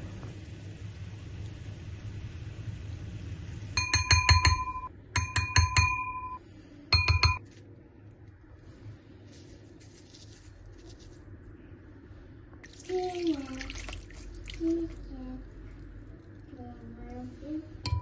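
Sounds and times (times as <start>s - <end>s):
glassware clinking: 3.8s - 6.4s, 7.0s - 7.4s.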